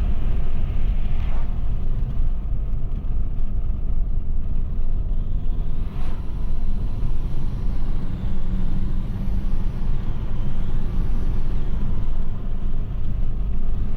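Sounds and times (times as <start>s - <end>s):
faint high turbo whistle: 0.0s - 2.4s, 5.1s - 13.8s
diesel engine rumbling: 0.0s - 13.9s.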